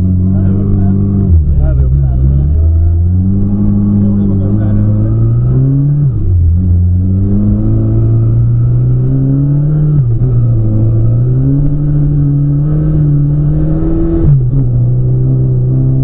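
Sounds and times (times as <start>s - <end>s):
car engine revving through gears: 0.0s - 16.0s.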